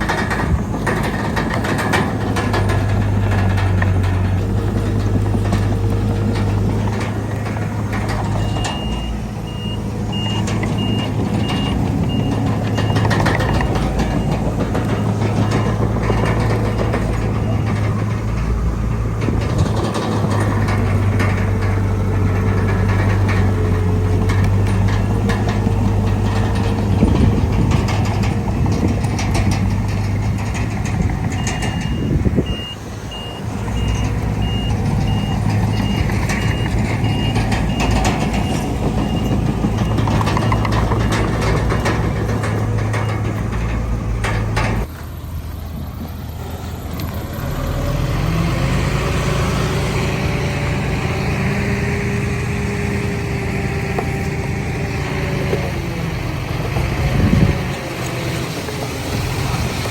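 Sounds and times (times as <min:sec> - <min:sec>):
diesel engine running: 0:00.0 - 0:59.9
machinery clanking: 0:00.0 - 0:59.9
reversing alarm beeping: 0:08.3 - 0:17.9, 0:31.4 - 0:41.1.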